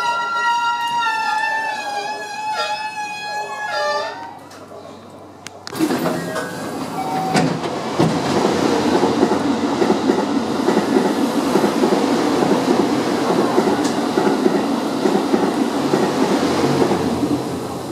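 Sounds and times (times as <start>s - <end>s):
train running noise: 5.7s - 17.9s.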